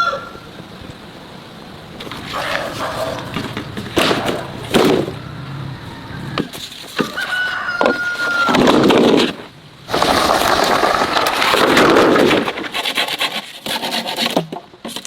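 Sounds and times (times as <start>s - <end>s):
rooster crowing: 0.0s - 0.5s, 4.4s - 8.9s
loud sharp cracks: 3.9s - 5.2s, 8.5s - 13.0s.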